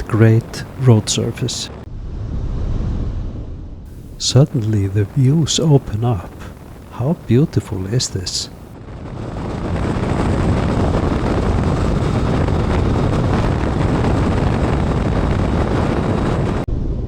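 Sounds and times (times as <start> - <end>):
road noise: 0.0 - 1.8, 3.9 - 8.7
wind on microphone: 0.0 - 17.0.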